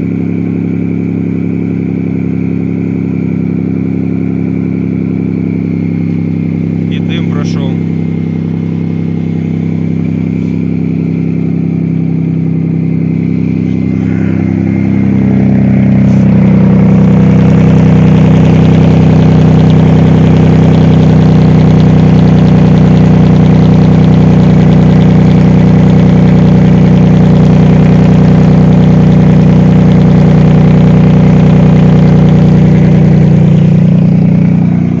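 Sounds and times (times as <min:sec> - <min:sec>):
car engine running: 0:00.0 - 0:35.0.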